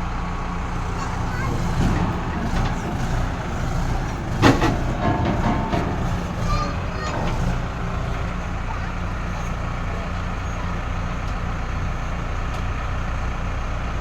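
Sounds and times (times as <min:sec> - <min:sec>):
diesel engine running: 0:00.0 - 0:14.0
metal clanks: 0:00.8 - 0:09.6.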